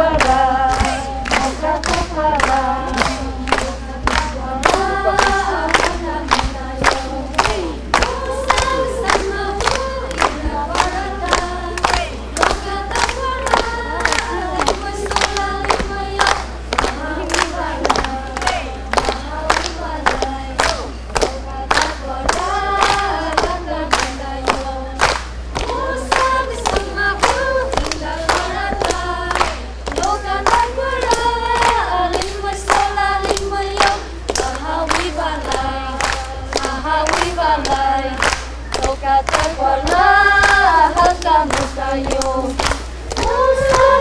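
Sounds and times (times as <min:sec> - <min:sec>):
group of voices singing: 0:00.0 - 0:44.0
rhythmic hand claps: 0:00.0 - 0:44.0.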